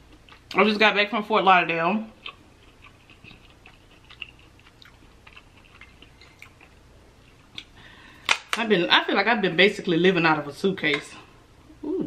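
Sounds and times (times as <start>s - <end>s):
quiet chewing: 0.0s - 0.6s, 2.1s - 7.8s.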